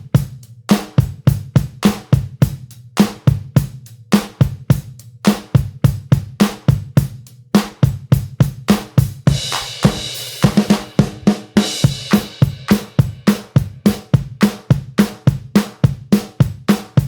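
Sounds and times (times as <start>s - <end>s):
fast steady drum beat: 0.0s - 17.0s
crashing cymbals: 9.3s - 13.6s.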